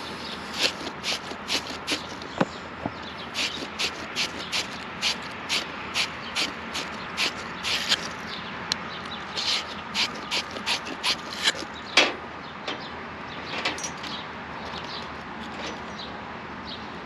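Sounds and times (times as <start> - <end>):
scraping on copper pipe: 0.0 - 2.4, 3.2 - 8.2, 9.3 - 11.7.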